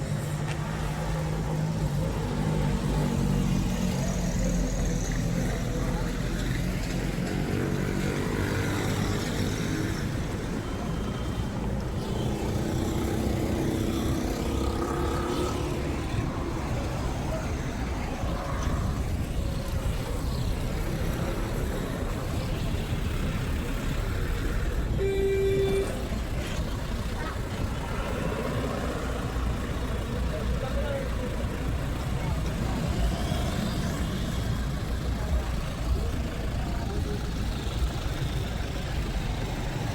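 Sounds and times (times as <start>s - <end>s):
road traffic rumble: 0.0s - 39.9s
car horn toot: 24.9s - 26.1s.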